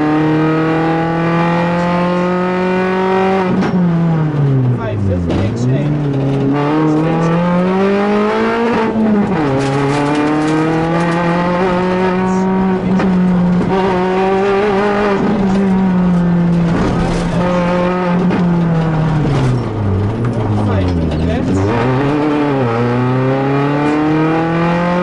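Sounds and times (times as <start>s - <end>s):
rally car engine at high revs: 0.0s - 25.0s.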